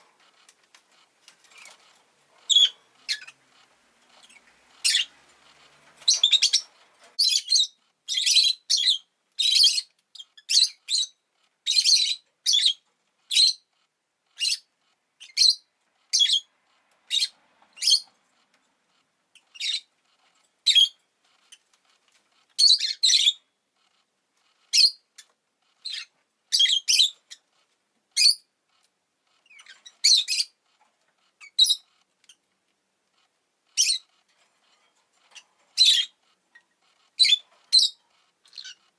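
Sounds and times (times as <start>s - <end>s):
lovebird chirping: 1.4s - 16.5s, 17.1s - 18.2s, 19.3s - 21.7s, 22.5s - 23.5s, 24.7s - 27.5s, 28.1s - 28.5s, 29.4s - 30.6s, 31.4s - 32.4s, 33.7s - 34.2s, 35.2s - 38.9s.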